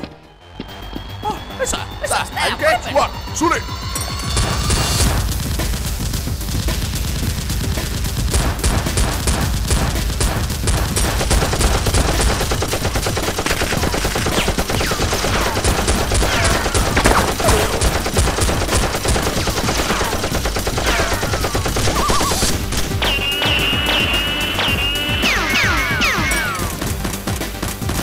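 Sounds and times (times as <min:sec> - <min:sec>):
rapid automatic gunfire: 0:05.0 - 0:28.0
bullet ricochet whines: 0:14.2 - 0:18.1, 0:19.2 - 0:26.8.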